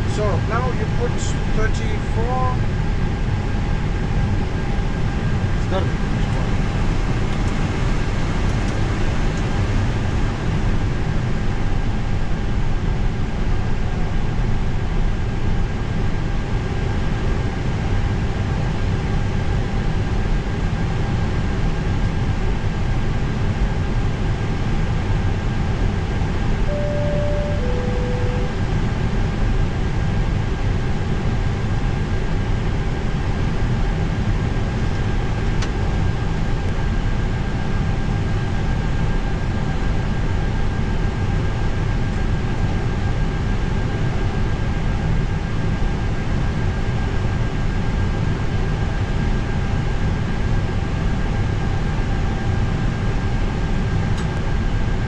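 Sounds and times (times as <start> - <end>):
jet engines rumbling: 0.0 - 11.6
faint steady whine: 26.6 - 28.7
short tones: 26.7 - 28.6.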